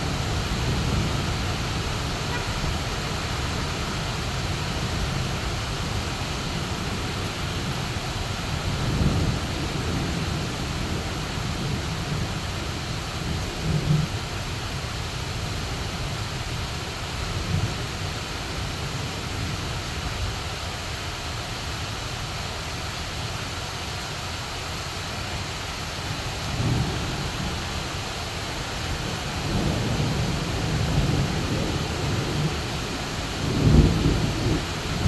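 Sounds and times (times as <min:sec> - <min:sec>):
heavy rain pouring: 0:00.0 - 0:35.0
thunder rumbling: 0:26.4 - 0:35.0.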